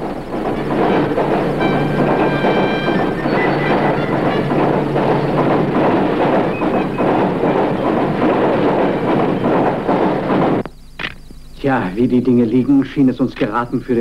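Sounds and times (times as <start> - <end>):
train rushing past: 0.0 - 10.7.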